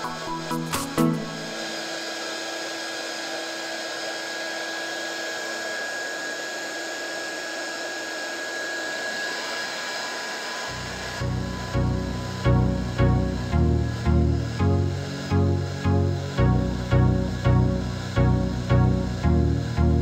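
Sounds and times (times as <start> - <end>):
electronic music with heavy beat: 0.0 - 1.5
hot air gun blowing: 0.0 - 12.4.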